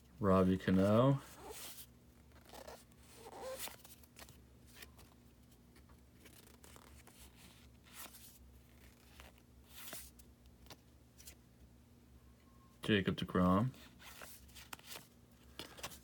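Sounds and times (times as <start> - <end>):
faint low hum: 0.0 - 16.0
cards sliding with a swish: 1.3 - 4.9.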